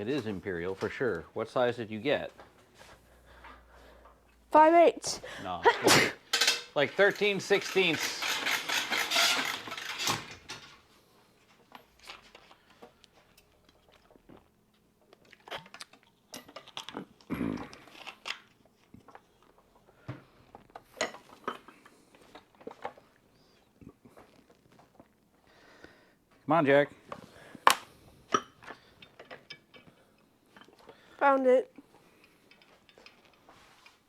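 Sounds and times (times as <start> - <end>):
metal tools clinking: 6.3 - 10.8.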